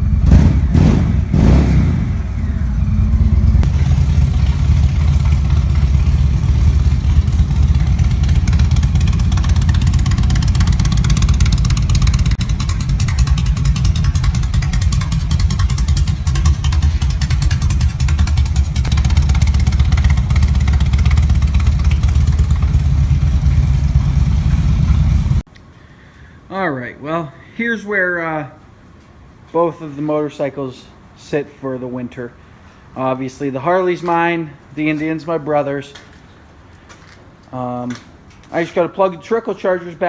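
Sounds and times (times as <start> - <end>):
vehicle engine pulsing: 0.0 - 25.5.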